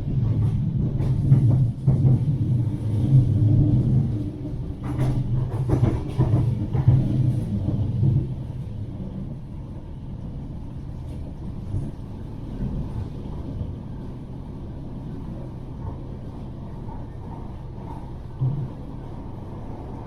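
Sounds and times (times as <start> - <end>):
tram wheels rumbling: 0.0 - 20.0.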